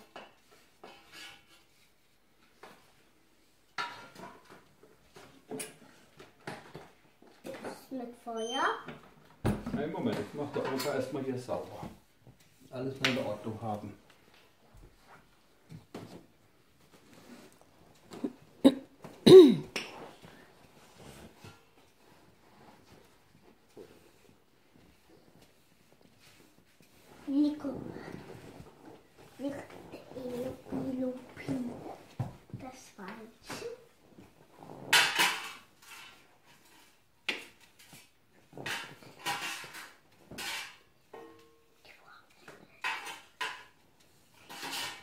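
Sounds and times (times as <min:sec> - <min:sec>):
clattering and scraping at fireplace: 0:00.0 - 0:08.3, 0:08.9 - 0:45.0
person coughing vocal sound: 0:18.6 - 0:19.8.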